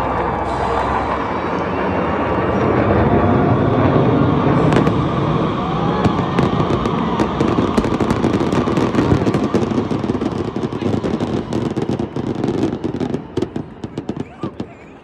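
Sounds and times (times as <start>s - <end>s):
fireworks bursting and crackling: 3.8s - 15.0s.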